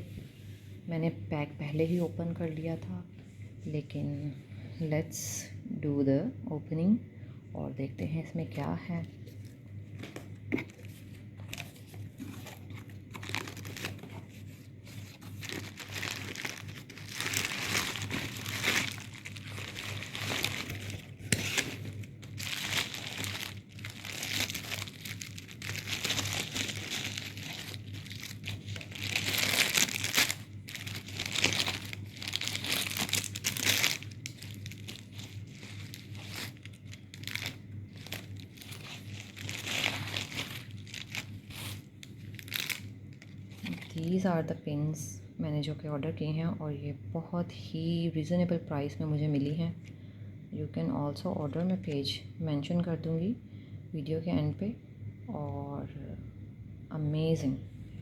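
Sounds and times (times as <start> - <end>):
packaging crinkling and tearing: 10.0 - 44.1.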